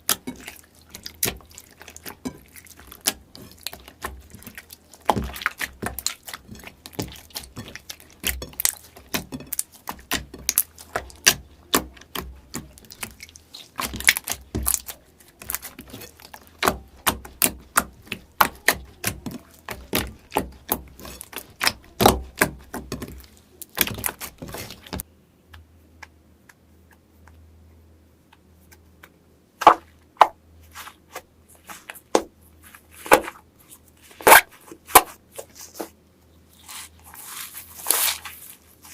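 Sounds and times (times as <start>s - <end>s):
slime squelching and popping: 0.0s - 25.0s.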